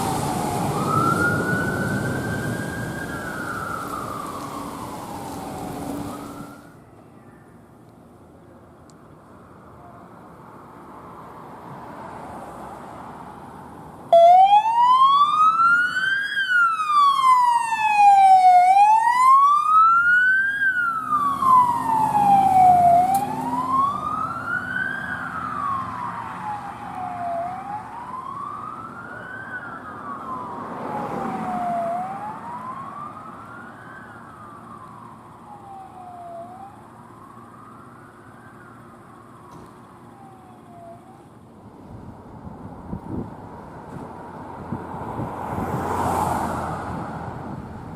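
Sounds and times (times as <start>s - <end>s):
engine rumble: 0.0s - 47.9s
electronic siren wailing: 14.1s - 34.4s, 35.4s - 36.8s.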